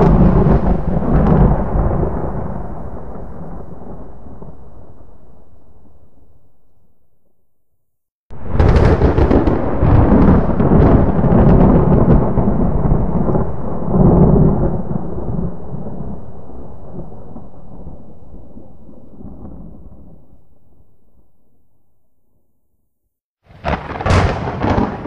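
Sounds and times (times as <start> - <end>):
lightning crack: 0.0 - 5.4, 8.3 - 20.3, 23.5 - 25.0
thunder rumbling: 0.0 - 6.3, 8.3 - 20.8, 23.5 - 25.0.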